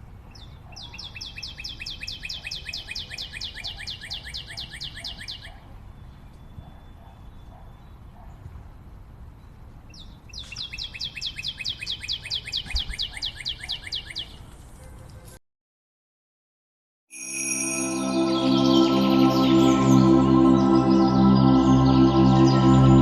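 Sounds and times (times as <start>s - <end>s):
songbird singing a fast trill: 0.3s - 8.0s, 9.9s - 14.4s.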